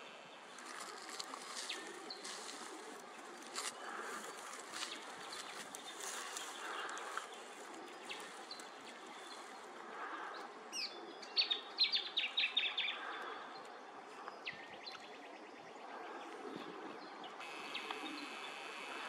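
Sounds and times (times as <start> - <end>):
wild bird calling: 0.0 - 19.0
steady high buzz: 17.4 - 19.0.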